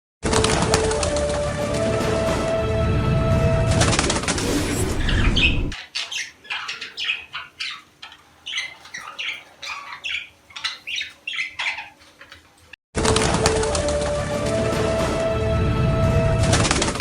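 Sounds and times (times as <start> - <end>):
budgerigars chirping and squawking: 4.4 - 12.7.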